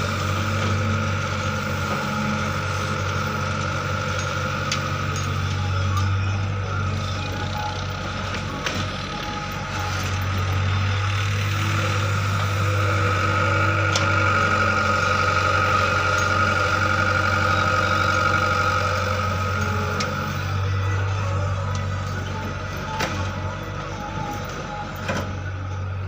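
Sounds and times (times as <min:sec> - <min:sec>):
heavy vehicle engine running: 0:00.0 - 0:26.0.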